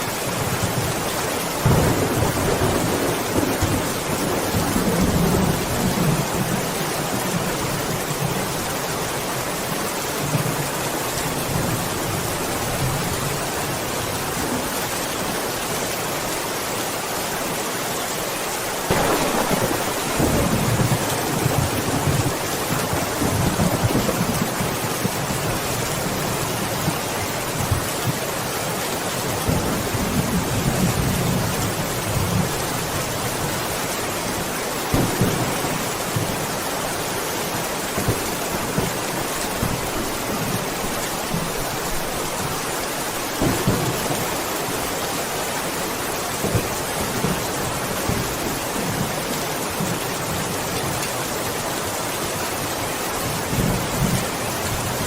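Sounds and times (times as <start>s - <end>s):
steady rain hissing: 0.0s - 55.0s
thunder rumbling: 1.6s - 8.3s, 18.9s - 27.0s, 34.9s - 36.6s, 43.3s - 44.8s
thunder cracks: 18.9s - 24.6s, 34.9s - 36.3s.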